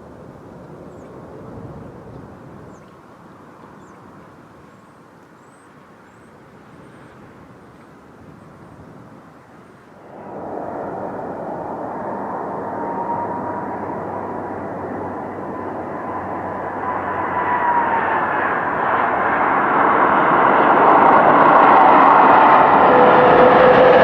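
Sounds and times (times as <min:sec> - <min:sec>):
aeroplane engine roar: 0:06.1 - 0:24.0
high whine sliding down: 0:10.0 - 0:24.0.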